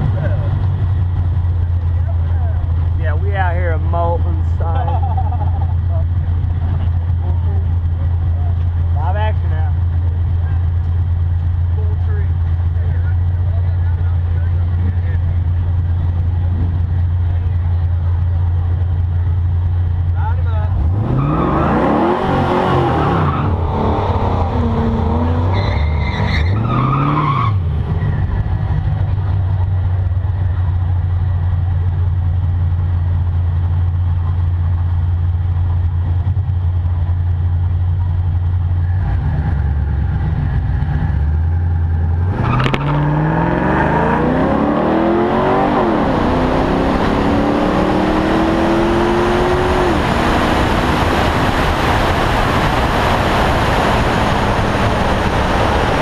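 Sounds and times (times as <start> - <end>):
car engine idling: 0.0 - 21.0, 27.5 - 43.3
car accelerating at full throttle: 0.0 - 56.0.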